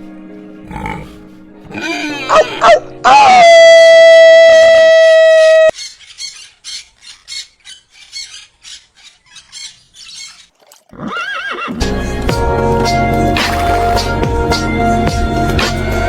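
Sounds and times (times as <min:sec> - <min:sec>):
music: 0:00.0 - 0:04.4, 0:11.8 - 0:16.0.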